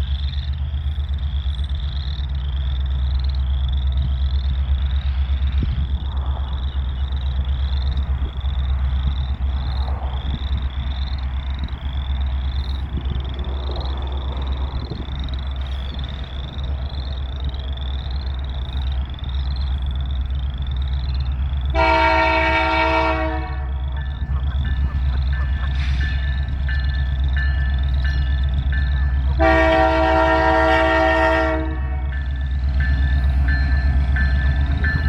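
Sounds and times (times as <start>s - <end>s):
continuous low rumble: 0.0s - 35.0s
frogs chirping: 0.0s - 35.0s
locomotive horn blast: 21.7s - 26.6s, 29.0s - 34.0s.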